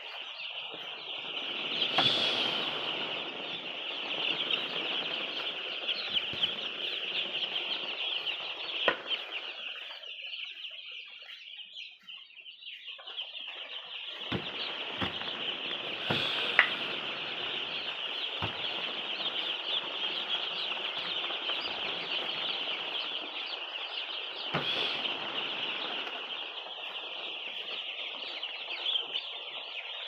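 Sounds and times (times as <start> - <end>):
chickens calling in chorus: 0.0 - 12.2, 12.9 - 28.3
sharp knocks: 1.9 - 2.9, 14.3 - 17.7, 18.4 - 18.9, 24.6 - 25.2.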